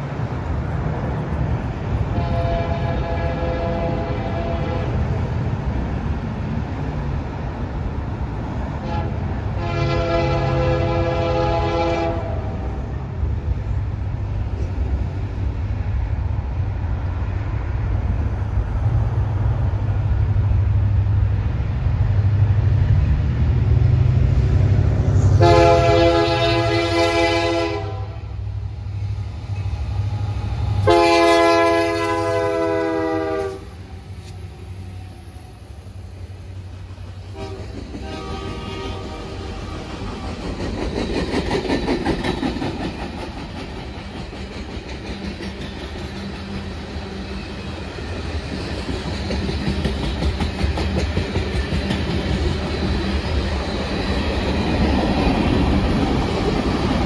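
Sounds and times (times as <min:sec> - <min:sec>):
diesel locomotives rumbling: 0:00.0 - 0:57.0
train air horn blasts: 0:02.1 - 0:05.0, 0:08.8 - 0:12.7, 0:25.2 - 0:28.4, 0:30.8 - 0:33.9, 0:37.3 - 0:40.0
wheels clattering on rails: 0:37.5 - 0:57.0.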